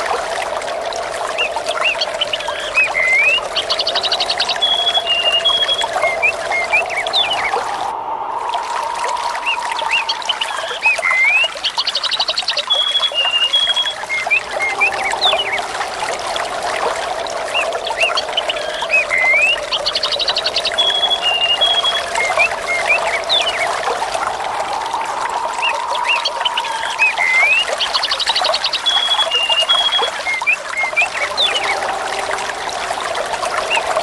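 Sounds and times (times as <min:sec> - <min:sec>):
water trickling: 0:00.0 - 0:34.0
small birds chirping: 0:09.4 - 0:15.8, 0:25.6 - 0:31.8.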